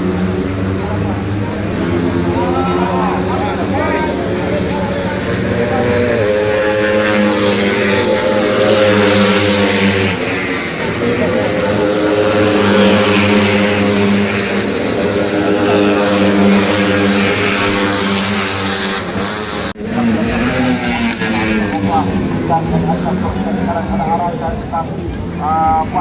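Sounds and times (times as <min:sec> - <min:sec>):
motorcycle engines revving high: 0:00.0 - 0:26.0.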